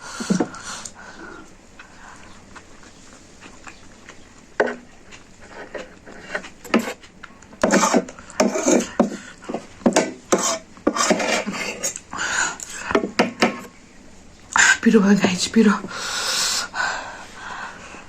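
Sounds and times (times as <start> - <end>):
eating noises: 0.0 - 9.8
utensil knocking and scraping bowl: 5.6 - 7.0, 7.6 - 12.0.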